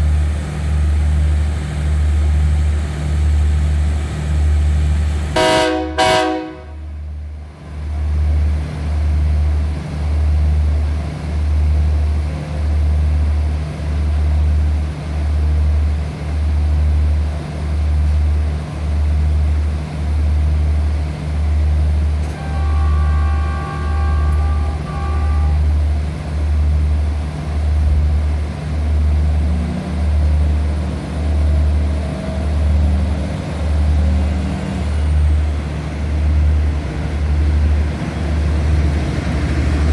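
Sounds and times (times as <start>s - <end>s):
diesel train horn: 3.2s - 7.1s, 21.8s - 26.7s.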